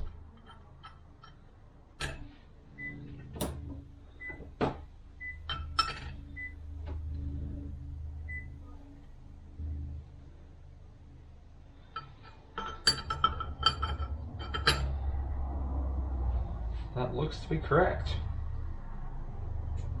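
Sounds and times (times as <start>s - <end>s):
low steady hum: 0.0s - 20.0s
metal parts clicking and knocking: 11.9s - 15.1s.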